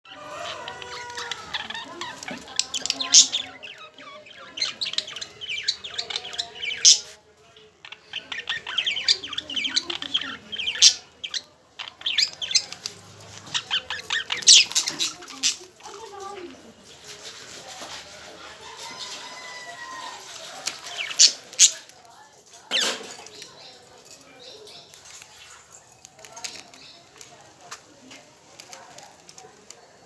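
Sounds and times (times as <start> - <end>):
budgerigars chattering: 0.1 - 15.9, 20.6 - 21.9.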